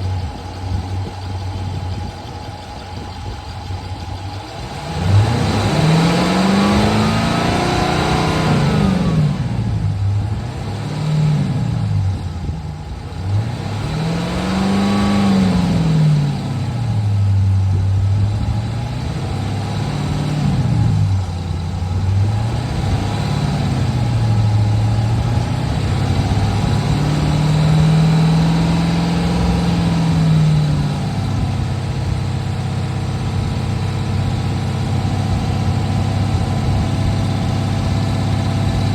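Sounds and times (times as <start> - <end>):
car exhaust revving: 0.0 - 38.9.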